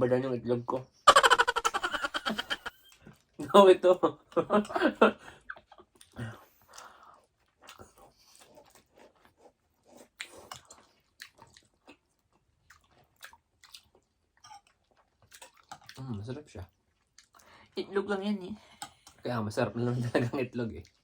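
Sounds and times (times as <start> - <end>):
chewing crunchy food: 5.4 - 17.8, 20.8 - 21.0.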